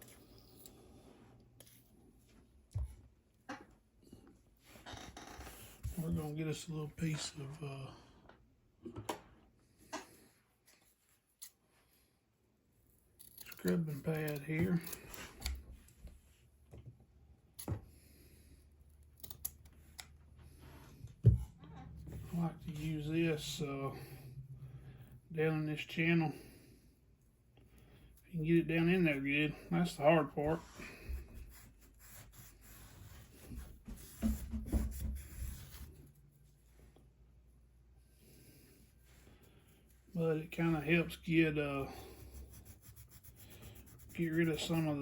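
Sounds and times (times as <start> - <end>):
scrubbing pad scratchy rubbing: 42.2 - 45.0.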